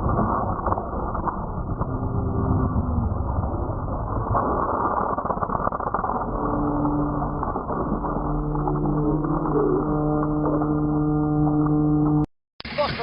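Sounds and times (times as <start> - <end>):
vehicle engine droning: 6.4 - 12.3.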